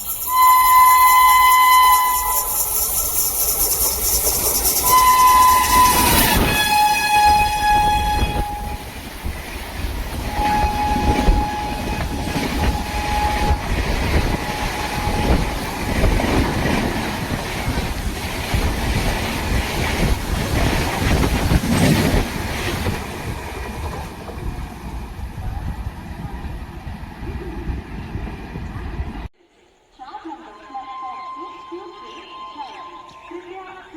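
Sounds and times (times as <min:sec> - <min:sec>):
train wheels clattering on rails: 0:00.0 - 0:25.4
train horn: 0:00.3 - 0:02.8, 0:04.8 - 0:09.0, 0:10.2 - 0:16.8, 0:30.8 - 0:33.8.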